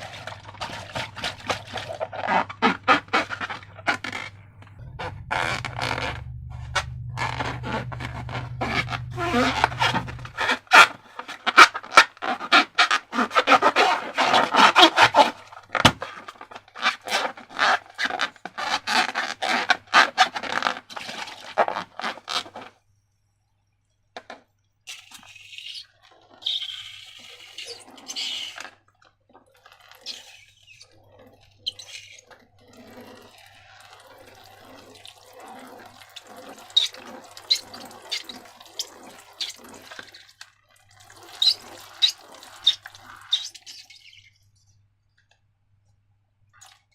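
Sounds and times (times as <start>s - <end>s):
slime squishing by hand: 0.0s - 22.7s, 35.5s - 40.4s.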